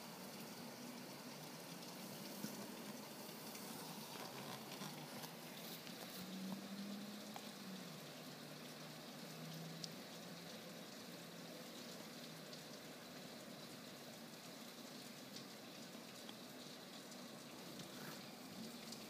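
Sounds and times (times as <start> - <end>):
steady rain hiss: 0.0 - 19.0
water drips ticking: 0.0 - 19.0.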